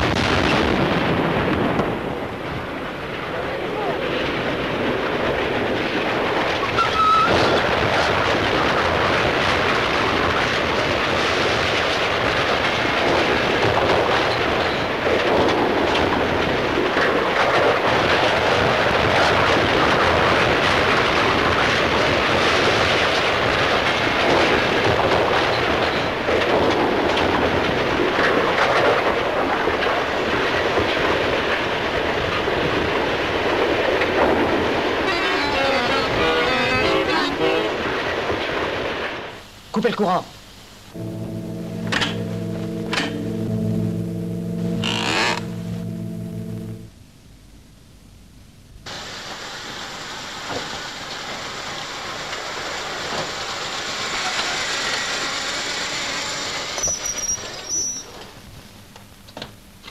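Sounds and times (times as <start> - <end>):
train rumbling along track: 0.0 - 39.5, 40.9 - 46.9, 48.9 - 58.4
brief high tone: 41.0 - 47.0.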